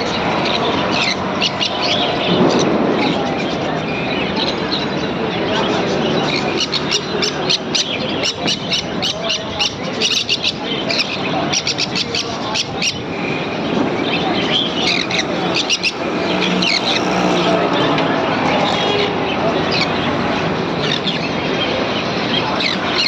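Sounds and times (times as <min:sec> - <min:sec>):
steady background hum: 0:13.1 - 0:17.9.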